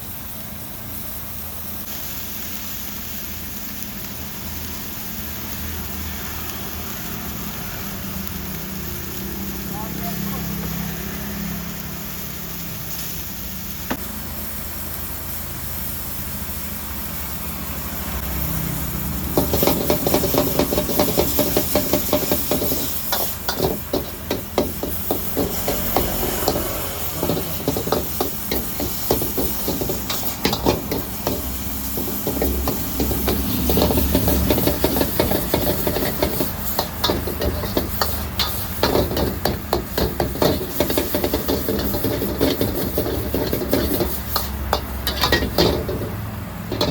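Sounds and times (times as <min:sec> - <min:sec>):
wok sizzling: 0:00.0 - 0:46.9
metal spatula scraping wok: 0:18.2 - 0:46.9.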